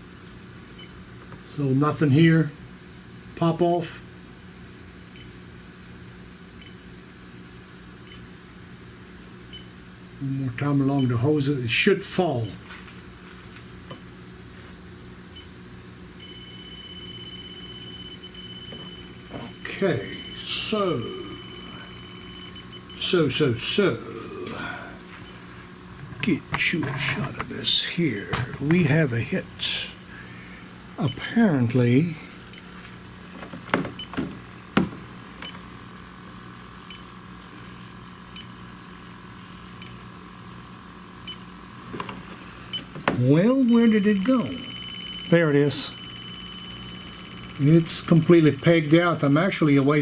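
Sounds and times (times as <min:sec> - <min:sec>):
low steady hum: 0:00.0 - 0:50.0
leak detector rapid beeping: 0:16.2 - 0:23.2, 0:43.5 - 0:49.9
knocks: 0:33.4 - 0:35.1.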